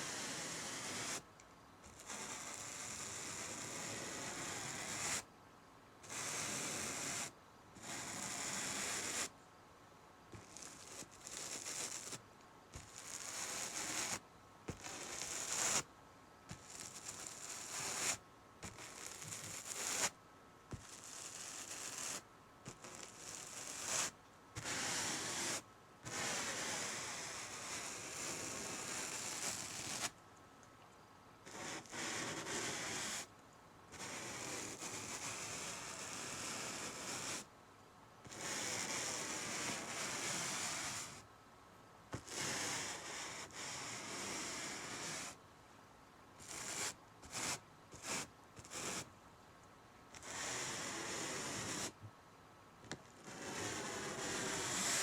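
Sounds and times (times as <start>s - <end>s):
paintbrush scratching on canvas: 0.0s - 1.2s, 1.9s - 5.2s, 6.0s - 9.3s, 10.3s - 12.2s, 12.8s - 15.9s, 16.5s - 20.1s, 20.7s - 30.1s, 31.5s - 33.3s, 34.0s - 37.5s, 46.4s - 49.1s, 50.2s - 52.0s, 53.2s - 55.0s.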